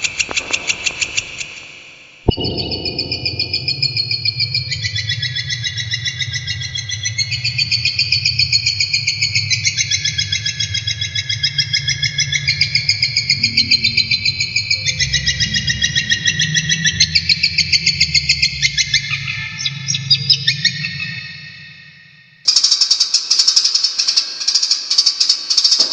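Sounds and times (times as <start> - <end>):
steady low hum: 2.3 - 5.5, 12.6 - 17.6.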